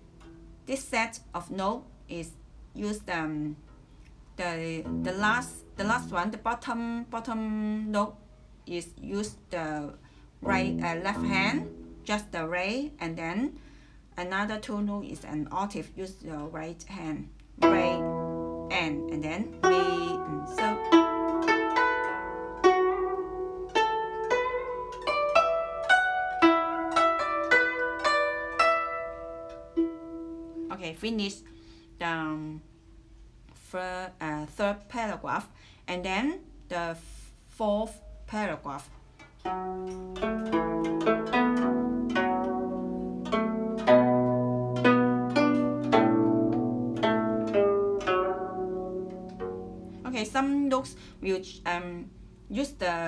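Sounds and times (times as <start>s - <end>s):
guzheng melody: 0.0s - 0.7s, 4.5s - 7.9s, 9.1s - 12.8s, 17.6s - 32.2s, 39.2s - 53.0s
plucked zither notes: 0.0s - 0.8s, 3.5s - 8.0s, 8.9s - 13.2s, 17.6s - 33.1s, 39.2s - 53.0s
low bass string: 4.8s - 6.4s, 10.4s - 12.1s.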